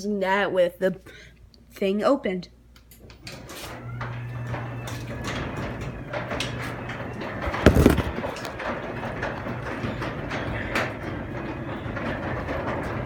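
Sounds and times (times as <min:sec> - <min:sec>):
garage door opener motor humming: 0:03.2 - 0:13.0
loud knock: 0:07.7 - 0:08.2.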